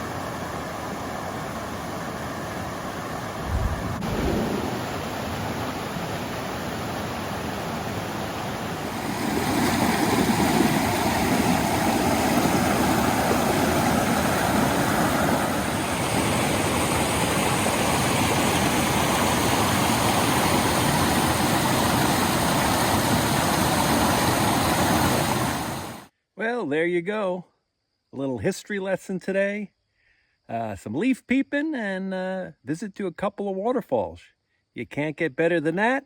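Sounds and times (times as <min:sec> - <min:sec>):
waterfall rushing: 0:03.1 - 0:26.1.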